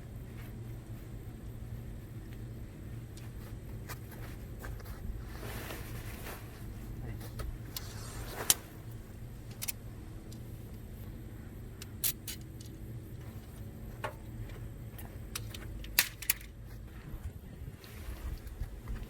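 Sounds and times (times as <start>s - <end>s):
low hum: 0.0s - 19.0s
metallic clicks and clinks: 11.8s - 12.8s, 15.3s - 16.6s.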